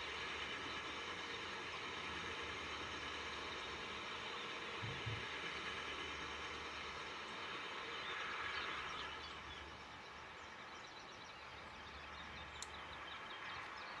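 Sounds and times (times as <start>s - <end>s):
freight train rumbling: 0.0s - 14.0s
small birds chirping: 0.0s - 14.0s
click: 12.6s - 12.8s.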